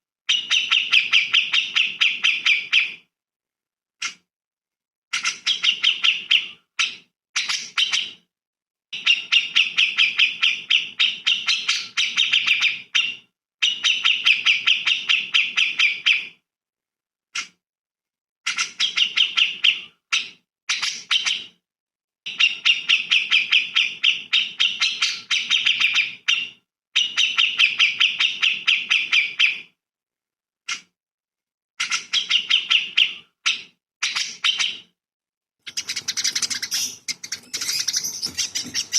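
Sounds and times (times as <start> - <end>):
songbird chattering: 35.7 - 38.9.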